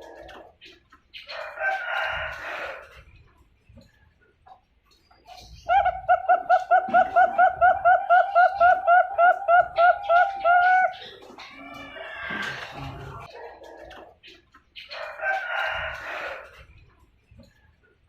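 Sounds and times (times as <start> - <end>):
dove cooing: 5.5 - 13.7.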